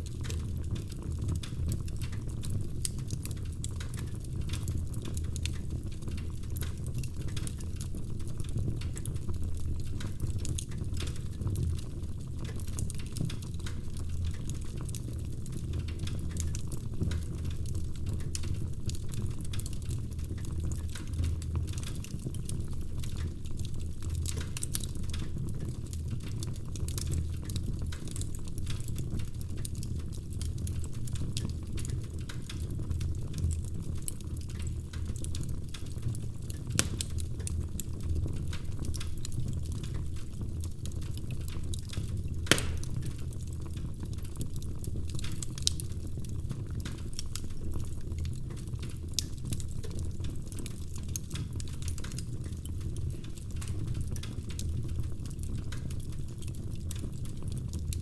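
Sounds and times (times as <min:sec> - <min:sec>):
wood fire crackling: 0:00.0 - 0:58.0
sharp pop from fire: 0:42.5 - 0:43.1.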